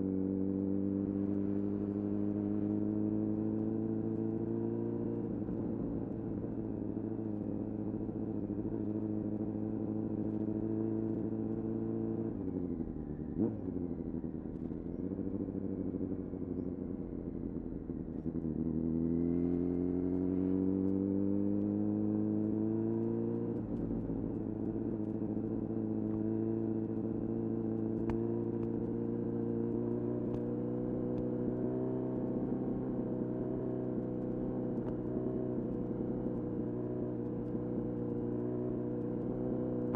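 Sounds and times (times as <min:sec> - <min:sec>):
motorcycle engine revving: 0:18.2 - 0:23.6.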